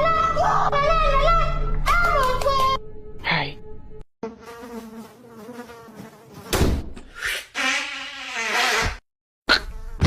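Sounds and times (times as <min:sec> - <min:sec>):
cartoon insect buzzing: 0:04.2 - 0:10.0.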